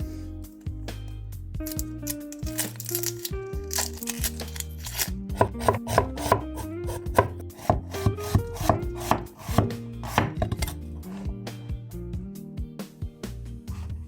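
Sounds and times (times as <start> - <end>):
knife chopping on cutting board: 4.5 - 11.4.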